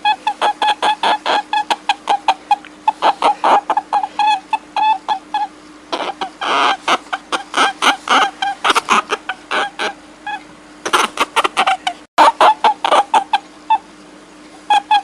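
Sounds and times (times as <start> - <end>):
squeaky animal calls: 0.0 - 13.9, 14.6 - 15.0
faint steady hum: 0.0 - 15.0.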